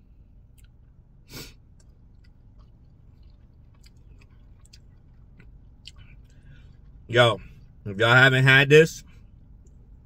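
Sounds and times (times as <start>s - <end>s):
man chewing: 0.4s - 7.8s.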